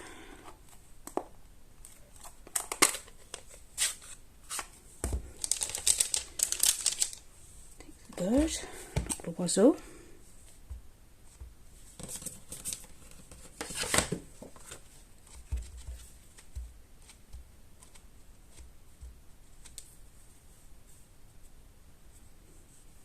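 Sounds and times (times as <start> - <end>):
card rustling and snipping: 0.6 - 7.2.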